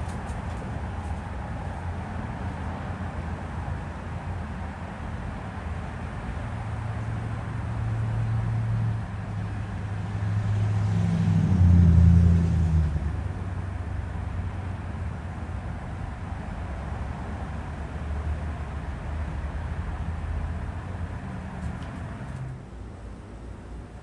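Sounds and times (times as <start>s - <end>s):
ceiling fan humming: 0.0s - 10.5s.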